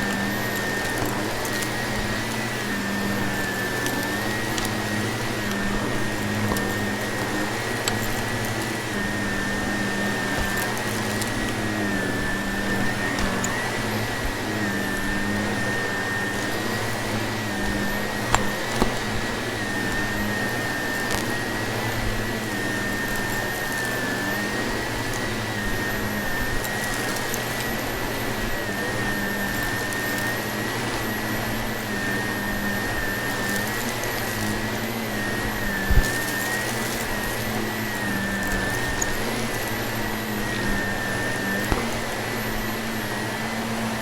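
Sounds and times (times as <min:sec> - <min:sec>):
vacuum cleaner running: 0:00.0 - 0:44.0.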